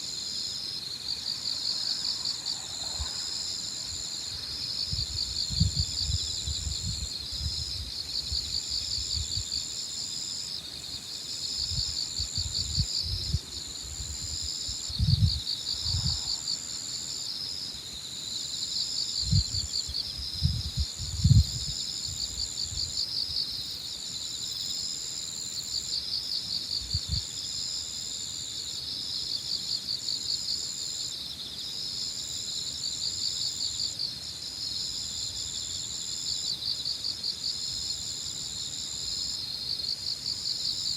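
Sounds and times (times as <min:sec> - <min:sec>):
crickets chirring: 0:00.0 - 0:40.9
high insect trill: 0:00.0 - 0:40.9
wind buffeting microphone: 0:04.8 - 0:09.5, 0:11.6 - 0:16.3, 0:19.2 - 0:22.9.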